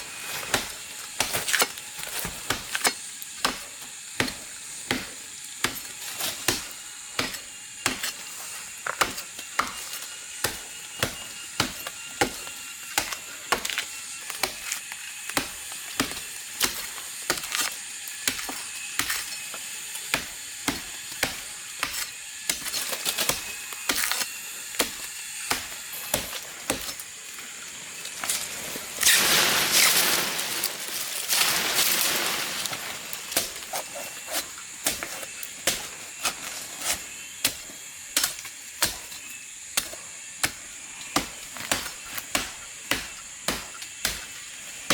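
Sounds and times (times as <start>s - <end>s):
blade chopping wood: 0.0s - 44.9s
loud hissing bursts: 24.4s - 38.0s.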